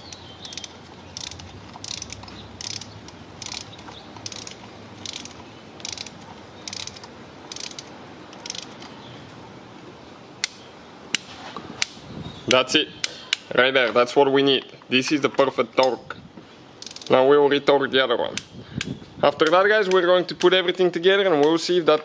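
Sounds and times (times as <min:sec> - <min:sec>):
sharp torque wrench clicks: 0:00.0 - 0:08.9, 0:16.8 - 0:17.1
torque wrench ratcheting: 0:00.0 - 0:08.9, 0:16.8 - 0:17.2.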